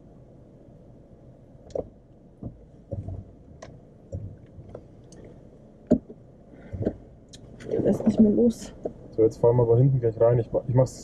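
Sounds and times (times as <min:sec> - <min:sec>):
vehicle knocks and clunks: 0:01.7 - 0:04.9.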